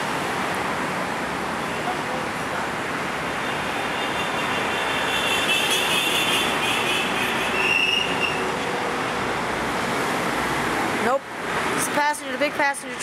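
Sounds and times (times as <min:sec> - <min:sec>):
train wheels squealing: 0:07.5 - 0:08.4.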